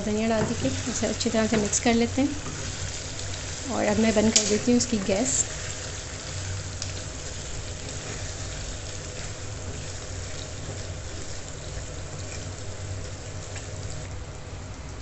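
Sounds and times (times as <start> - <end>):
chicken sizzling in a pan: 0.0 - 15.0
low steady hum: 0.0 - 15.0
wooden spatula stirring: 0.2 - 14.1.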